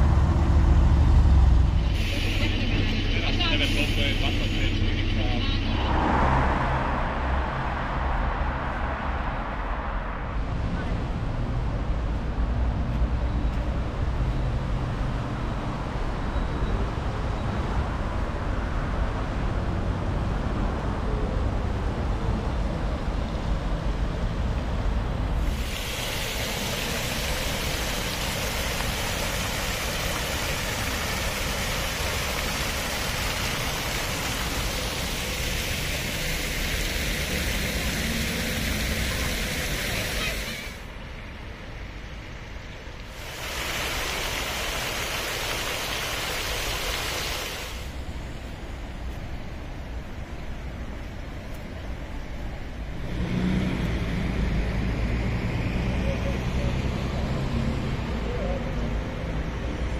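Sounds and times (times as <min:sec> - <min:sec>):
hissing rush: 0:25.4 - 0:40.9, 0:43.1 - 0:48.0.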